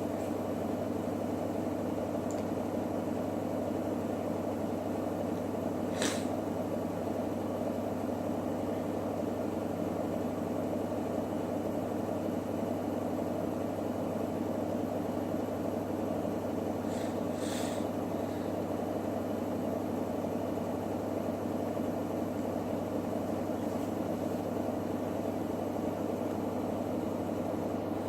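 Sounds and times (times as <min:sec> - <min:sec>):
washing machine running: 0:00.0 - 0:28.0
brief high hiss: 0:05.9 - 0:06.3.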